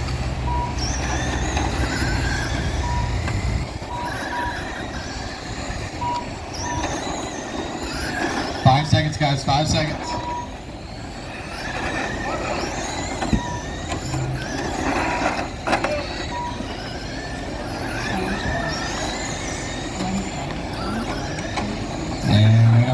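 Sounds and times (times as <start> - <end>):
electric motors whining: 0.0 - 22.9
short beeps: 2.8 - 5.1, 5.9 - 7.6, 9.9 - 10.6, 16.0 - 16.7.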